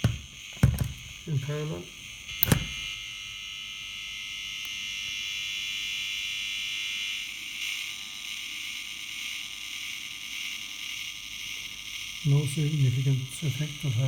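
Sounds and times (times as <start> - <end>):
electrical hiss with high tones: 0.0 - 14.0.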